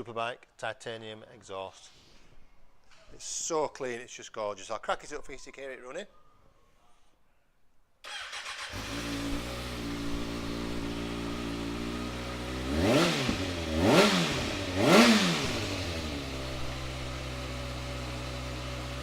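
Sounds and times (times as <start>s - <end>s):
motorcycle engine idling and revving: 8.1s - 19.0s.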